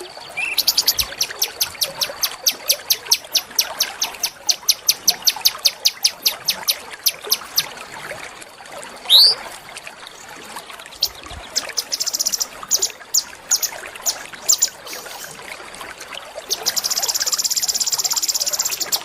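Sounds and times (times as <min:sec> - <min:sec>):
songbird calling sharp high notes: 0:00.4 - 0:07.7, 0:09.1 - 0:09.4.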